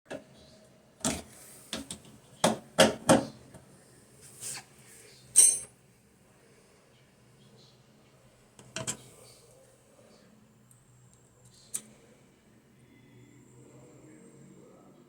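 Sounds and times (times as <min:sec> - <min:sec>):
metallic ring: 0:05.4 - 0:05.7.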